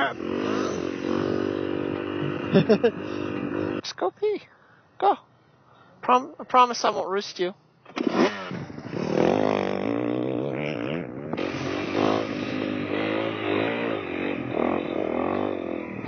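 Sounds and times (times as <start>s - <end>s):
motorcycle engine revving: 0.0s - 3.8s, 7.9s - 16.0s.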